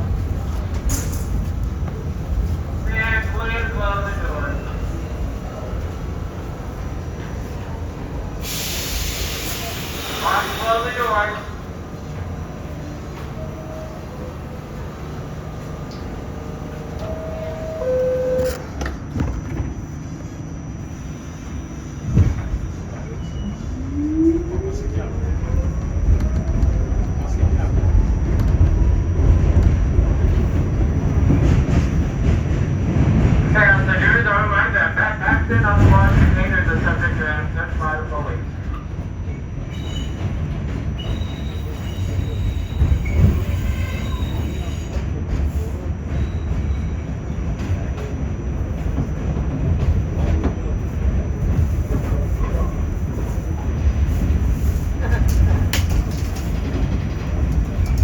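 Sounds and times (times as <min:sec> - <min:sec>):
subway train rumbling: 0:00.0 - 0:58.0
two-tone door chime: 0:17.0 - 0:18.6
wheel squeal: 0:41.0 - 0:44.9.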